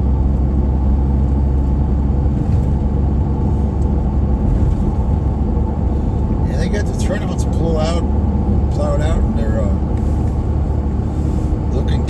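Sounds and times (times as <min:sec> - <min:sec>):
vehicle engine and tyres rumbling: 0:00.0 - 0:12.0.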